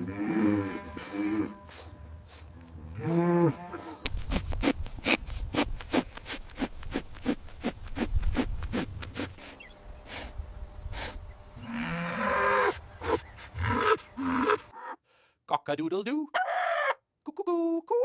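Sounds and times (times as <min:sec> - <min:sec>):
cow mooing: 0:00.0 - 0:04.1, 0:11.6 - 0:12.8, 0:13.6 - 0:14.7.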